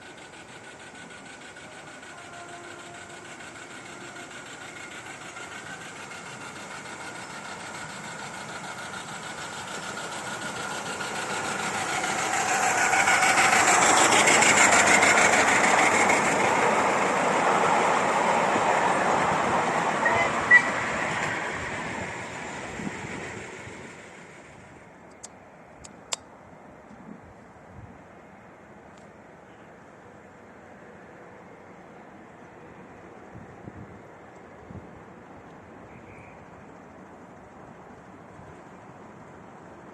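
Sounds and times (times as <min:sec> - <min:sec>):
steam train rumbling and rattling: 0:00.0 - 0:26.2
sharp click: 0:25.1 - 0:26.3.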